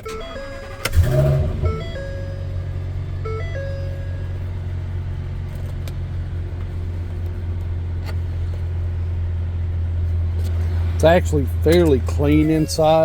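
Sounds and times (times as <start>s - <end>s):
held tones: 0.0s - 5.4s
truck engine idling: 0.0s - 13.0s.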